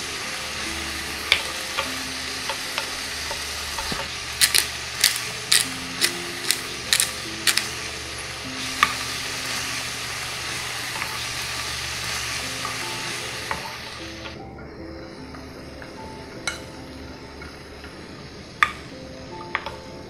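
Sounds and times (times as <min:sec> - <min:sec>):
food sizzling in a pan: 0:00.0 - 0:14.4
pepper grinder clicks: 0:03.8 - 0:07.7.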